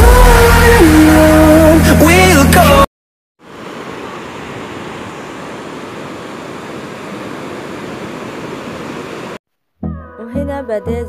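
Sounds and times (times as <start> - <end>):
sea waves rushing at shore: 3.4 - 9.4.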